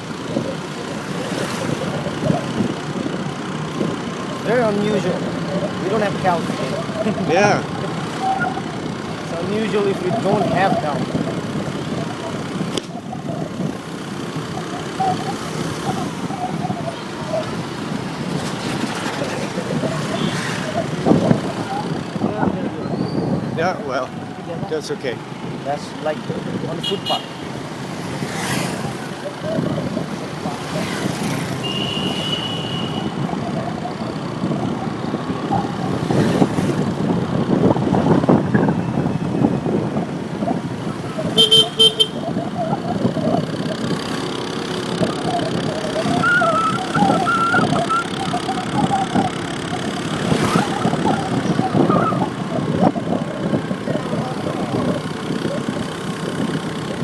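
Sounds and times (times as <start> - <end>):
motorcycle engine: 0.0 - 57.0
road noise: 0.0 - 57.0
short horn beeps: 26.8 - 27.5, 31.6 - 33.3, 41.2 - 42.4
horn held: 41.2 - 42.6.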